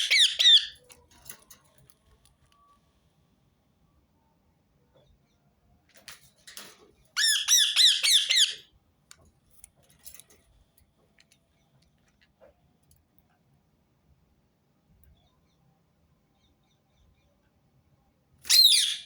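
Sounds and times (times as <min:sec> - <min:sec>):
parakeet shrill calls: 0:00.0 - 0:00.8, 0:07.2 - 0:08.6, 0:18.5 - 0:19.0.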